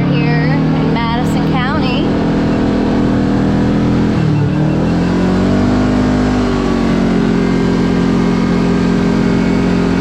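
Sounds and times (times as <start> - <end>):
road rumble: 0.0 - 10.0
vehicle engine running: 0.0 - 10.0.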